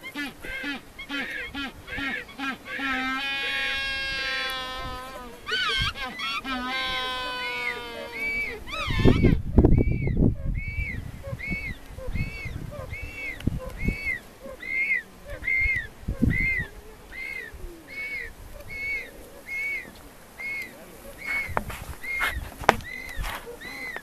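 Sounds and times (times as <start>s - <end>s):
bird whistled call: 5.5s - 24.0s.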